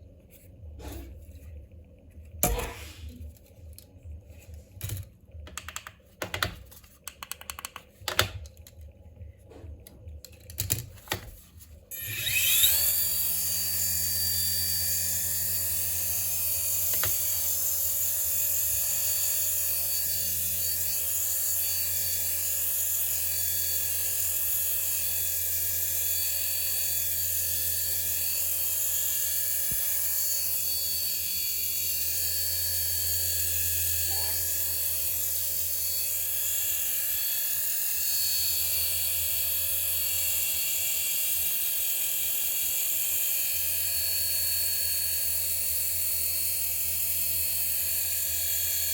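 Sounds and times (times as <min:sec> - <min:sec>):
handling clicks and taps: 0:05.4 - 0:08.7
toy helicopter rotor whine: 0:11.9 - 0:48.9.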